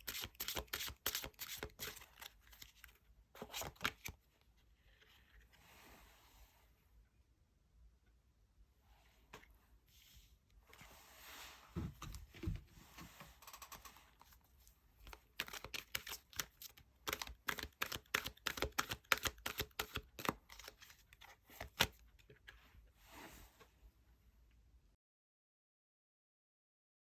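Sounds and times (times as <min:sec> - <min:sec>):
cards sliding rustle: 0:00.0 - 0:04.2, 0:14.2 - 0:22.6.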